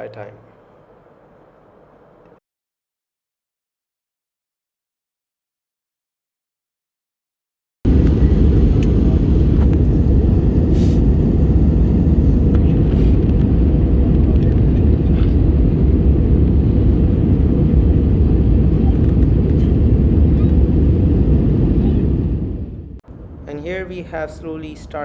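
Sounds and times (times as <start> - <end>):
airplane cabin roar: 7.9 - 25.0.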